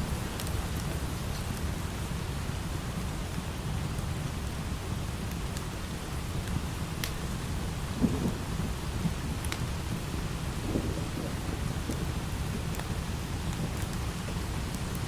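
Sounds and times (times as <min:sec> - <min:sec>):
light rain: 0:00.0 - 0:15.0
thunder rumbling low: 0:07.2 - 0:14.8.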